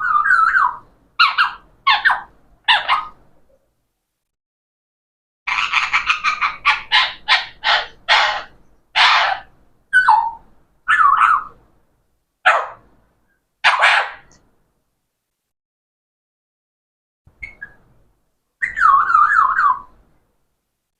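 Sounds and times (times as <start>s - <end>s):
parrot harsh chattering calls: 0.0s - 3.2s, 5.5s - 11.6s, 13.6s - 14.4s.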